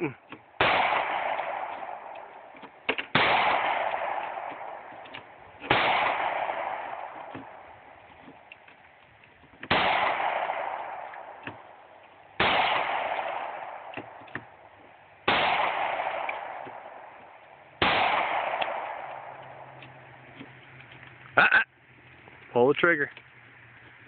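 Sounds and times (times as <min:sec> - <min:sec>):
pistol shots echoing: 0:00.6 - 0:07.9, 0:09.7 - 0:14.6, 0:15.2 - 0:19.7.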